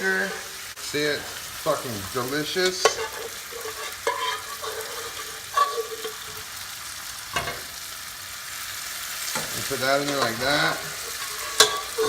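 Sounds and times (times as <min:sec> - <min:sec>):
food sizzling in a frying pan: 0:00.0 - 0:12.0
utensil scraping and knocking pan: 0:02.0 - 0:06.5, 0:09.3 - 0:12.0.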